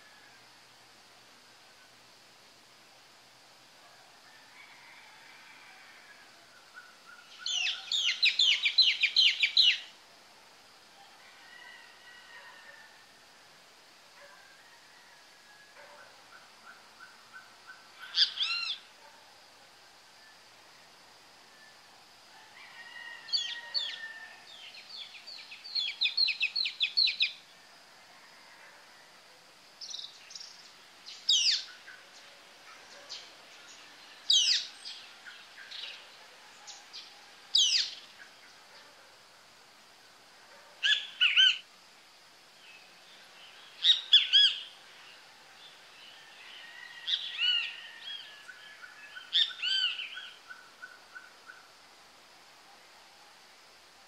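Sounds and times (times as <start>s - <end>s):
faint high hiss: 0.0s - 54.0s
birds calling and singing: 6.8s - 9.9s, 29.9s - 32.2s, 34.3s - 36.1s, 36.7s - 38.3s.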